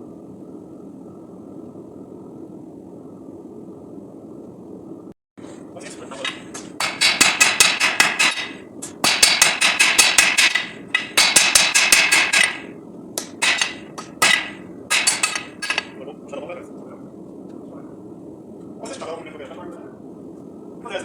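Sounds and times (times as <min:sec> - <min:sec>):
hammer ringing on anvil: 0:06.3 - 0:16.0.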